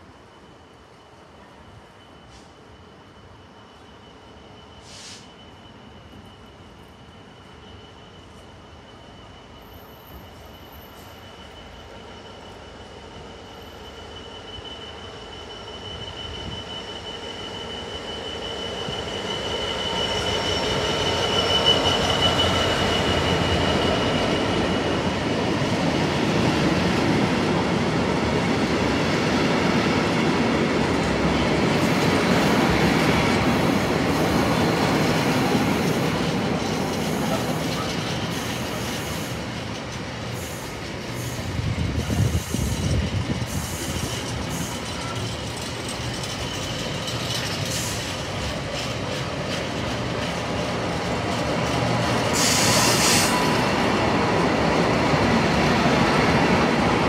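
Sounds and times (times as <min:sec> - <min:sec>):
diesel locomotive passing: 0:00.0 - 0:57.0
wagons rumbling and clattering on rails: 0:15.8 - 0:57.0.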